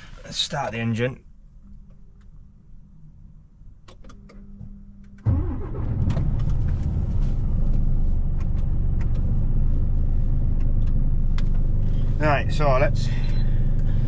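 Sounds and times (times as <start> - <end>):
diesel engine starting and idling: 5.2 - 14.0.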